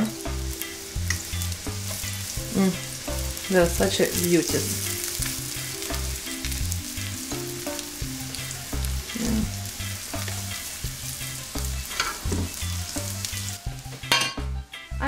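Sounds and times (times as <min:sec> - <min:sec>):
fritters sizzling in oil: 0:00.0 - 0:14.5.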